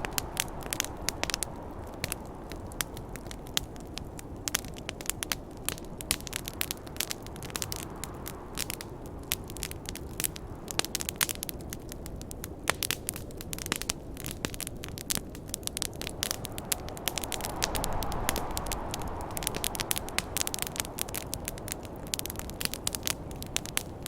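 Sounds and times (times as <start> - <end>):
low rushing noise: 0.0 - 3.2, 16.0 - 23.7
campfire crackling and popping: 0.0 - 24.0.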